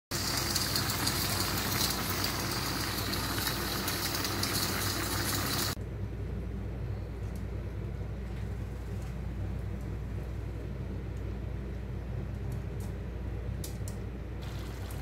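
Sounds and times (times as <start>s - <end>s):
food sizzling in a wok: 0.1s - 5.8s, 14.4s - 15.0s
steady low hum: 5.7s - 15.0s.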